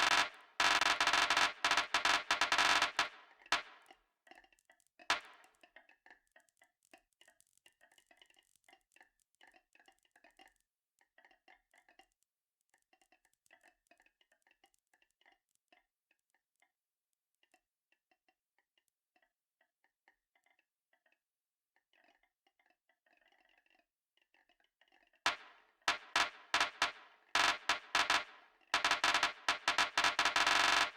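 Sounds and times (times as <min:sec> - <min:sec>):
marbles clacking along a track: 0:00.0 - 0:03.7, 0:25.3 - 0:30.9.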